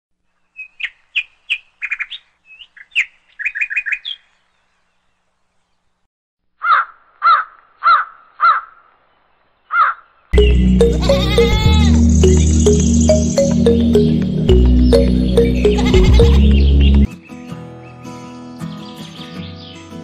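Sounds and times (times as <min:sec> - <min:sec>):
birds chirping: 0:08.5 - 0:17.1
loud music: 0:10.4 - 0:17.1.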